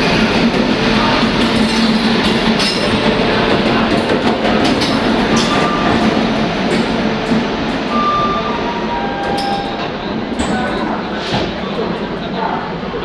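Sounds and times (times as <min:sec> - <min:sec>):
wheels clacking over rail joints: 0:00.0 - 0:12.4
train rail rumble: 0:00.0 - 0:13.0.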